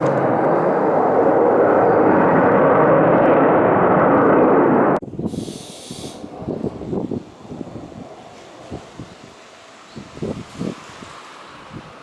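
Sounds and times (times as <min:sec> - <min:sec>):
fighter jet roar: 0:00.0 - 0:05.0
wind noise on microphone: 0:00.0 - 0:12.0
brief hiss: 0:05.3 - 0:06.2.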